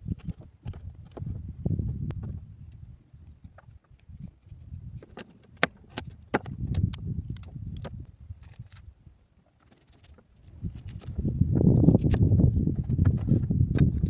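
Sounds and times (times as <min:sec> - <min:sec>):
sharp knocks and clicks: 0:05.0 - 0:08.0.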